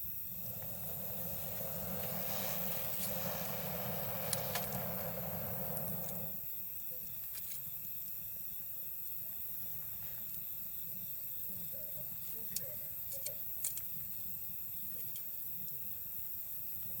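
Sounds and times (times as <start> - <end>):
broad rush of noise: 0.0 - 6.4
night insects chirping: 0.0 - 16.8
campfire crackling and popping: 0.3 - 6.4.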